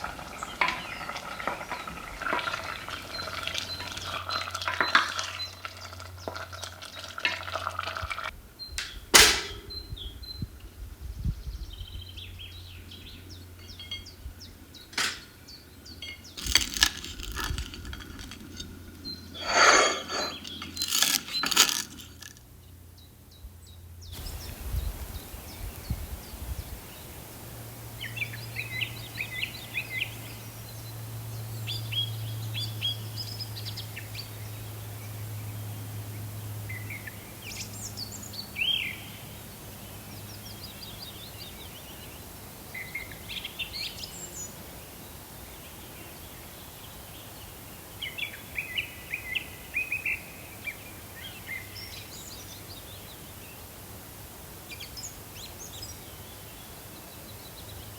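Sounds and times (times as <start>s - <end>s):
birds chirping: 11.5s - 22.3s.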